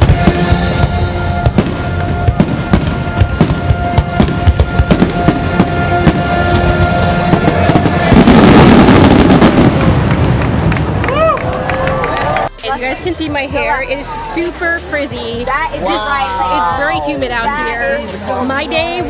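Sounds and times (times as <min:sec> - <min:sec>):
fireworks bursting: 0:00.0 - 0:11.1
rapid crackling fireworks: 0:00.0 - 0:11.3
music with long held notes: 0:00.0 - 0:19.0.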